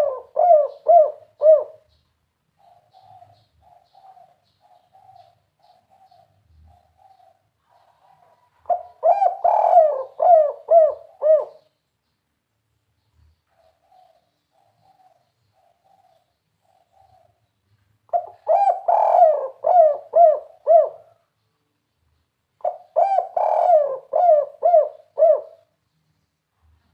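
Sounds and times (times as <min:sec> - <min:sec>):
faint soft cooing: 0:00.0 - 0:01.9, 0:06.8 - 0:11.7, 0:18.1 - 0:21.3, 0:22.6 - 0:25.8
dove cooing: 0:00.0 - 0:02.0, 0:02.6 - 0:11.7, 0:13.5 - 0:17.4, 0:18.1 - 0:21.3, 0:22.6 - 0:25.8.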